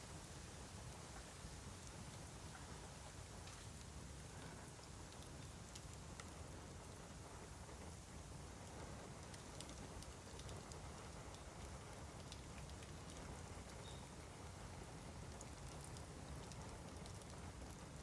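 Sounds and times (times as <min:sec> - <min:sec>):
bamboo fire crackling: 0:00.1 - 0:18.0.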